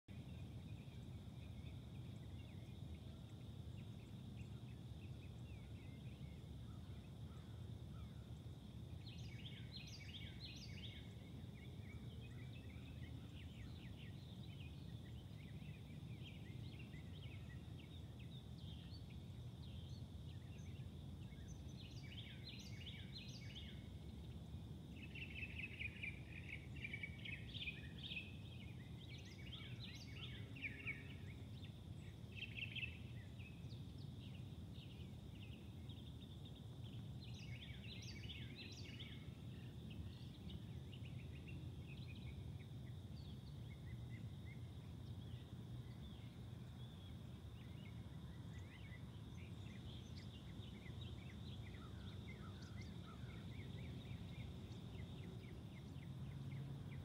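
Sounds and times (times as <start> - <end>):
bird chirping: 0.1 - 57.0.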